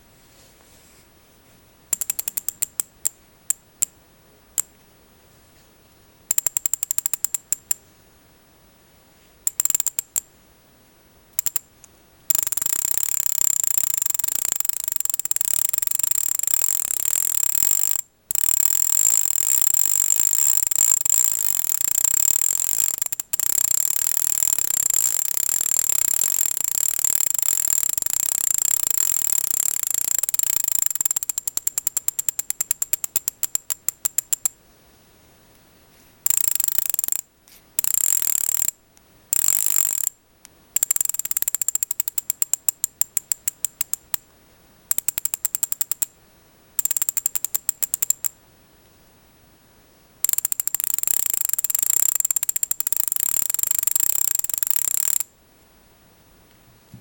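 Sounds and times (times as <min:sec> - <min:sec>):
bicycle hub ratchet clicking: 0:02.0 - 0:02.8, 0:06.3 - 0:07.7, 0:11.4 - 0:11.6, 0:12.3 - 0:34.5, 0:37.8 - 0:38.7, 0:39.3 - 0:40.2, 0:40.8 - 0:44.2, 0:44.9 - 0:46.1, 0:46.8 - 0:48.3, 0:50.2 - 0:55.3.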